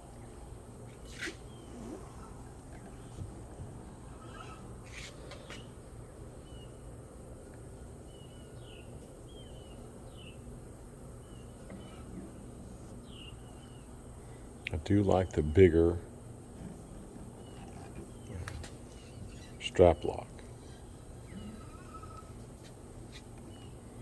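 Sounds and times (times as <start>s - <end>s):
low steady hum: 0.0s - 24.0s
small bird chirping: 11.2s - 14.7s, 17.0s - 22.5s.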